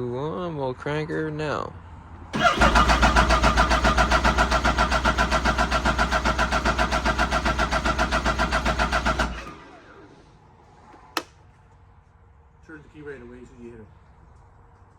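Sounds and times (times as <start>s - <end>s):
starter whine: 2.3s - 10.4s
snowmobile engine cranking: 2.4s - 10.1s.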